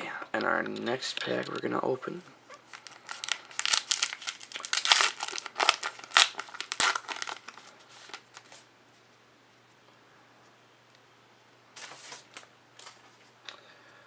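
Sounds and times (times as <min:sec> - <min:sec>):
wrapper tearing and crinkling: 0:02.7 - 0:08.7.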